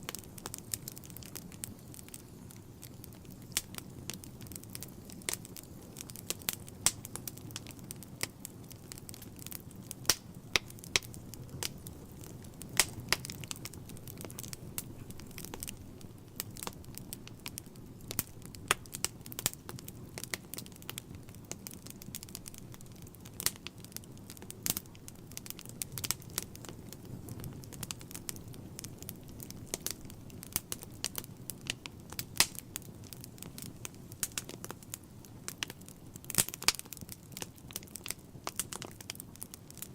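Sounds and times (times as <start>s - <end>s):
fire flames rumbling: 0.0s - 39.9s
logs crackling and popping: 0.0s - 39.9s.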